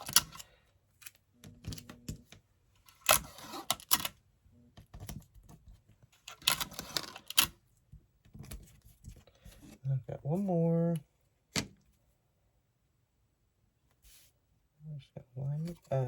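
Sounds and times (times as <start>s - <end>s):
paper handled on tabletop: 13.9s - 14.4s.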